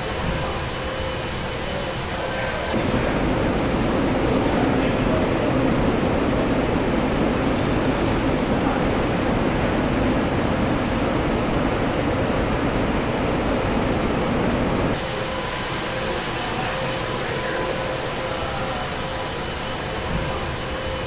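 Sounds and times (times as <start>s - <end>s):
air hiss: 0.0s - 2.8s, 15.0s - 21.0s
faint steady tones: 0.0s - 3.1s, 15.0s - 21.0s
machinery noise: 0.0s - 3.6s, 15.0s - 21.0s.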